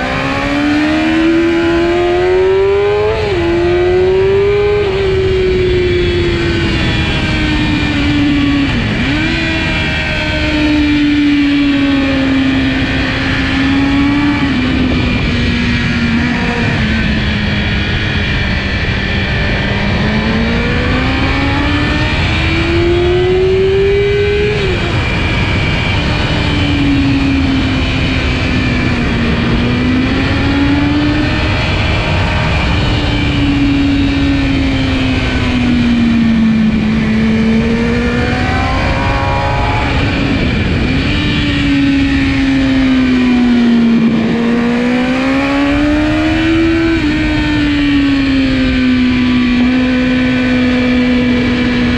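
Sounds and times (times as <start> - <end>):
motorcycle engine at race pace: 0.0 - 51.9.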